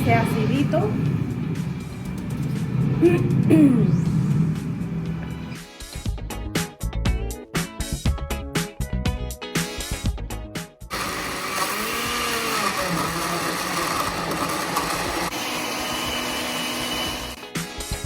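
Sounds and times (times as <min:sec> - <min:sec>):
background music with steady beat: 0:00.7 - 0:11.0, 0:17.1 - 0:18.0
blender running: 0:10.9 - 0:17.6.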